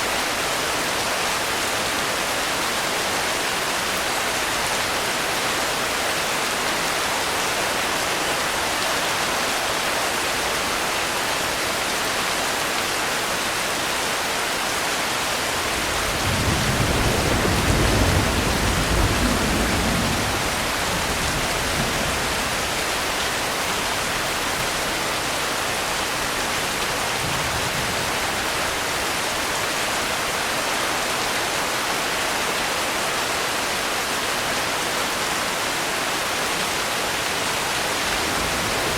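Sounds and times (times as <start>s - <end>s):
steady rain hiss: 0.0s - 38.9s
distant thunder rumbling: 15.6s - 23.1s, 38.0s - 38.9s.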